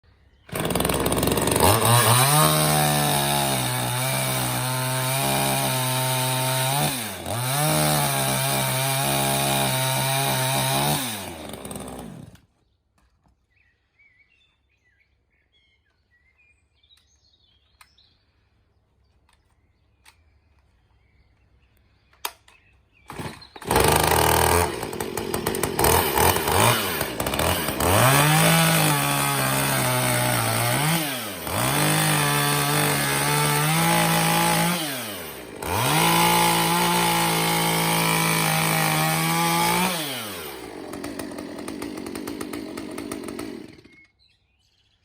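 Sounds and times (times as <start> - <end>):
chainsaw engine revving: 0.5 - 12.4, 23.1 - 44.1.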